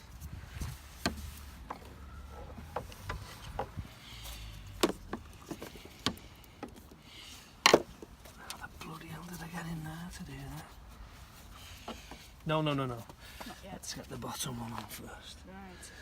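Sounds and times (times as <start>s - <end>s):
clicks and knocks handling car parts: 0.6s - 8.6s.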